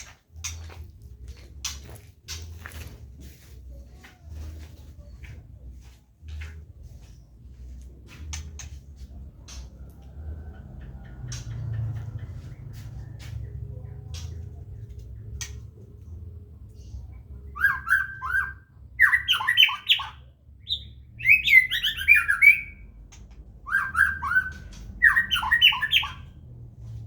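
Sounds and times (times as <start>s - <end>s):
low steady hum: 0.0s - 19.5s.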